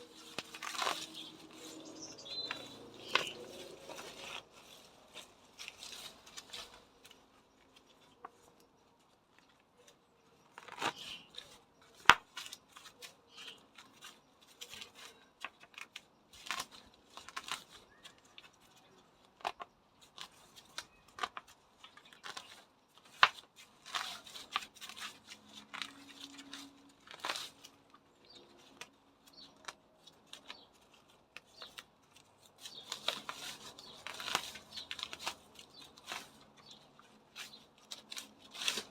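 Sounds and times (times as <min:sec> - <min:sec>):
pruning shears snipping: 0:00.0 - 0:07.2
foliage rustling: 0:00.0 - 0:19.0, 0:20.0 - 0:38.9.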